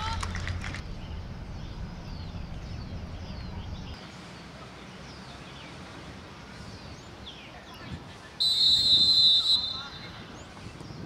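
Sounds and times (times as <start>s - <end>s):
low rumble: 0.0s - 4.0s
outdoor background noise: 0.0s - 11.0s
birds chirping: 0.8s - 11.0s.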